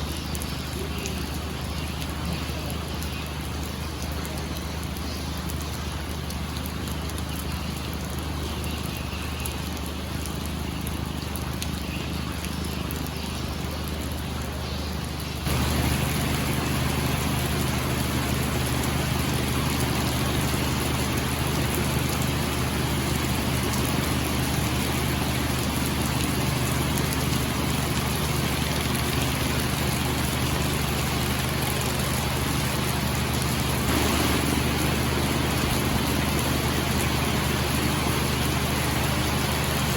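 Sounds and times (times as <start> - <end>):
rain hiss: 0.0 - 39.9
boat engine running: 15.4 - 39.9.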